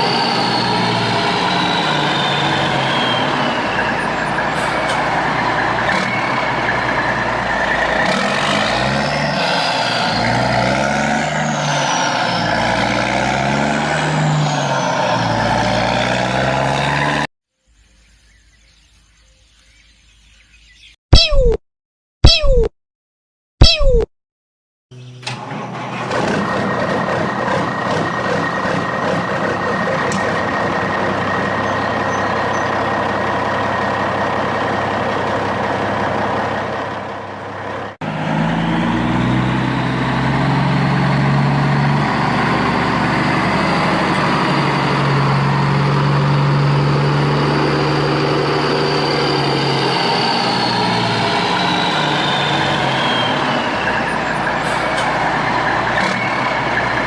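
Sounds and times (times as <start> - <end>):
deeper engine running: 0.0 - 9.1, 25.0 - 57.0
heavy vehicle engine running: 0.0 - 17.3, 25.0 - 57.0.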